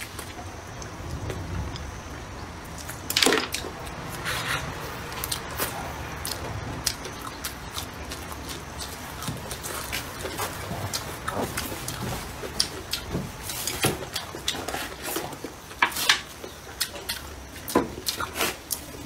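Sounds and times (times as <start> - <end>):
chewing and mouth smacks: 16.8 - 19.0.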